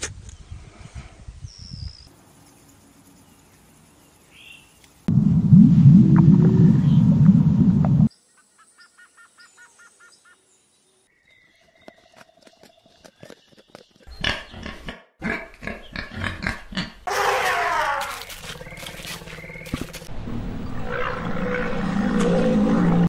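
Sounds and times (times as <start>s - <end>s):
faint regular chirping: 1.5s - 5.1s
loud harsh animal call: 17.1s - 19.8s.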